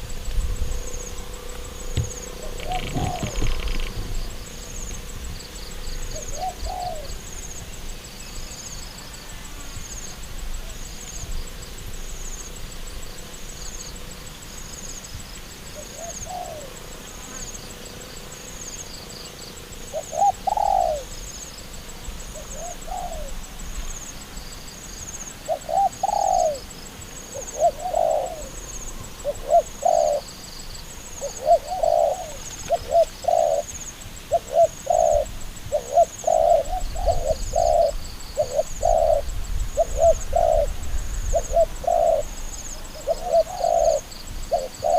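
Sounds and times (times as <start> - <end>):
dove cooing: 0.8 - 7.4, 15.7 - 16.9, 19.8 - 21.3, 22.3 - 23.4, 25.4 - 44.9.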